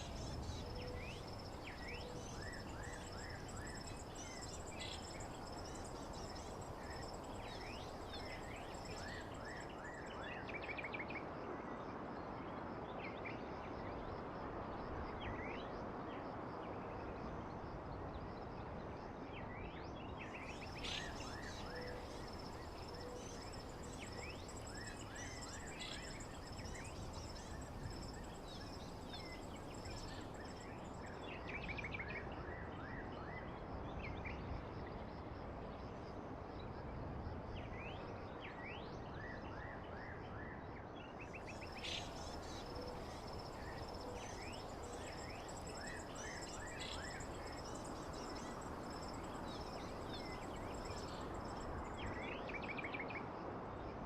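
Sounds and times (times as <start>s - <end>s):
insect trill: 0.0s - 9.8s, 20.5s - 31.4s, 41.4s - 52.3s
background hiss: 20.4s - 31.0s, 41.5s - 52.1s
small birds chirping: 41.4s - 52.0s.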